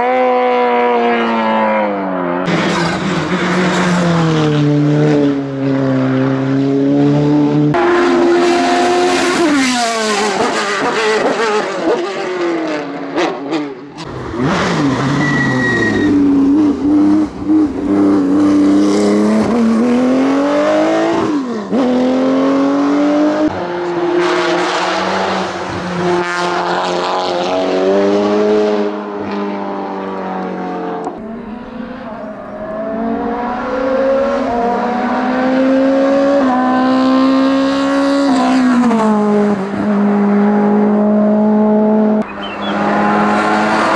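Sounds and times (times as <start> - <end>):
race car engines at full throttle: 0.0 - 43.9.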